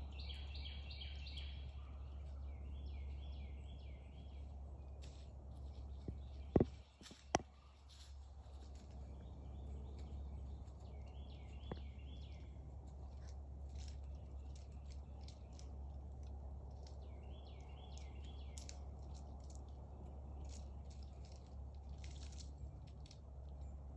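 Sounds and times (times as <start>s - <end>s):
light ticks: 13.1s - 19.8s.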